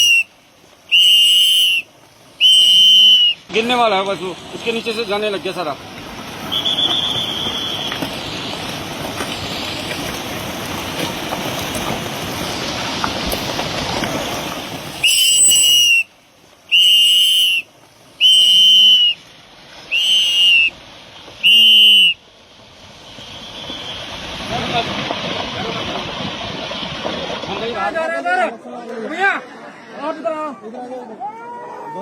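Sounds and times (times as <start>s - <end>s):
shrill whistle blasts: 0.0s - 3.5s, 6.4s - 8.1s, 15.0s - 19.3s, 19.9s - 20.8s, 21.4s - 22.2s, 23.0s - 24.2s
loud rushing noise: 18.3s - 28.1s.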